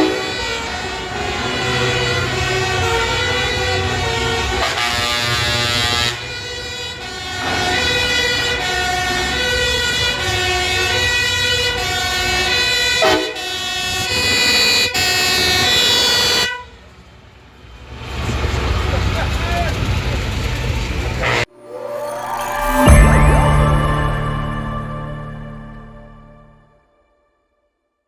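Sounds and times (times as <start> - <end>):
truck air horns honking: 0.0 - 21.5.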